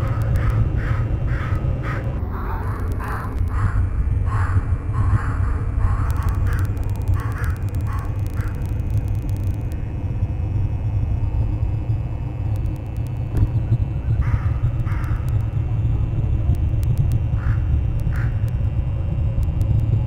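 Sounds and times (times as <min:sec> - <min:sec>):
crows cawing: 0:00.0 - 0:08.7, 0:14.2 - 0:15.3, 0:17.4 - 0:18.4
steady low rumble: 0:00.0 - 0:20.0.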